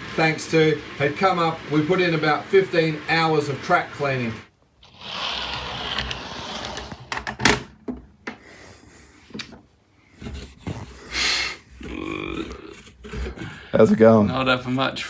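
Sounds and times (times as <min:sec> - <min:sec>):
scraping of model railway track: 0:00.0 - 0:07.4.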